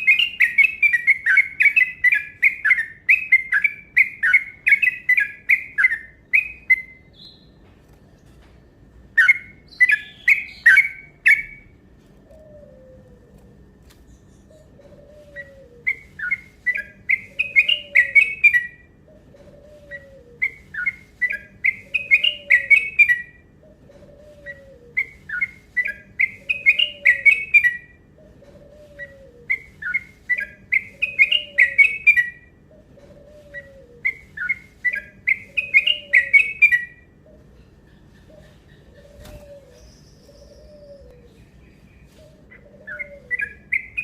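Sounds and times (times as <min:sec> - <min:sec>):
bulbul whistled song: 0:00.0 - 0:07.6, 0:09.2 - 0:11.7, 0:15.1 - 0:18.9, 0:19.6 - 0:23.4, 0:24.3 - 0:28.0, 0:28.7 - 0:32.5, 0:33.2 - 0:37.1, 0:42.6 - 0:44.0.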